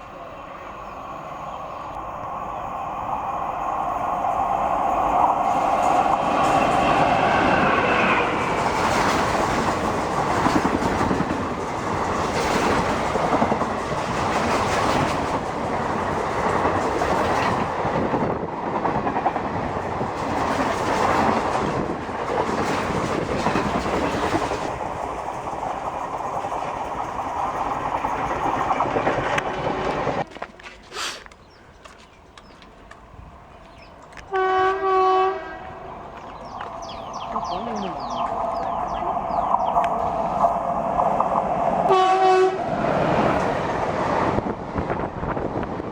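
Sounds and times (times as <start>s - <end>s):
train wheels clacking on rail: 5.0s - 30.5s, 35.6s - 45.9s
train horn blast: 34.3s - 35.9s, 41.9s - 42.7s.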